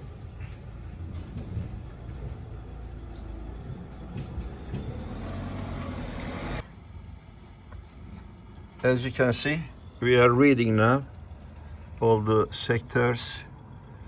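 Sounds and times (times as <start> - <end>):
vehicle engine running: 0.0 - 6.7.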